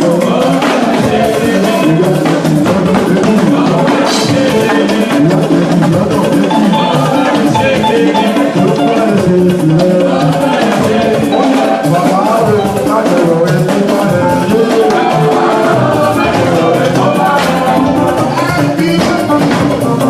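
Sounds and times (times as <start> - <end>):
drums and percussion beat: 0.0 - 20.0
melodic line: 6.2 - 9.8, 11.1 - 20.0.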